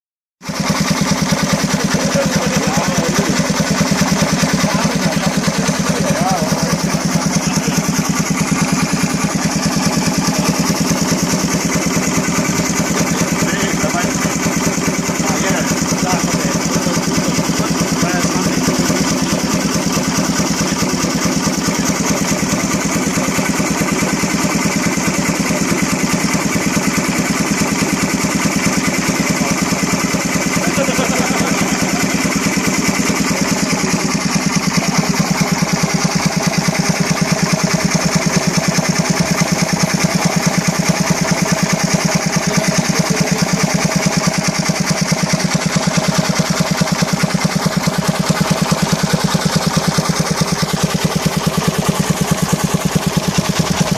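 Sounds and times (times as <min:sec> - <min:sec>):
steam engine exhaust beats: 0:00.4 - 0:53.9.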